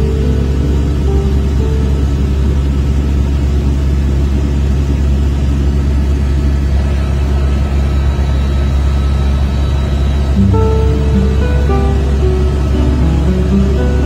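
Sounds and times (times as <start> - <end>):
helicopter engine and rotor: 0.0 - 13.8.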